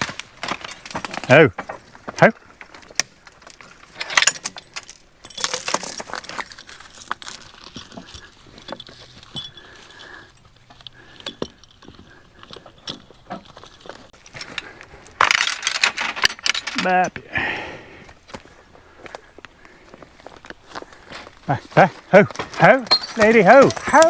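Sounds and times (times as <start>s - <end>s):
metal chains clinking and jangling: 3.4s - 17.1s, 22.6s - 24.0s.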